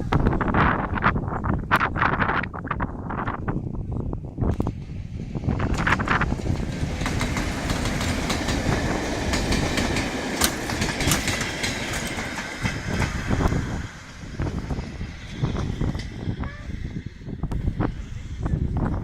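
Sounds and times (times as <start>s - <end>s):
train wheels clicking over rail joints: 4.5s - 18.0s.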